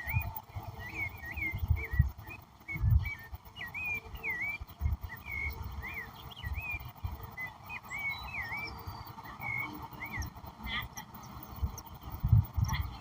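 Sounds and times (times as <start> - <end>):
songbird whistled notes: 0.0 - 10.4.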